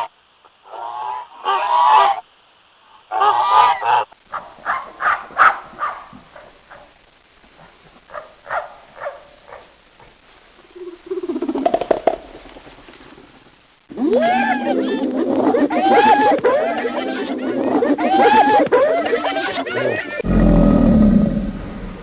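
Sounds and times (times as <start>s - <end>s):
geese honking: 13.9s - 20.2s.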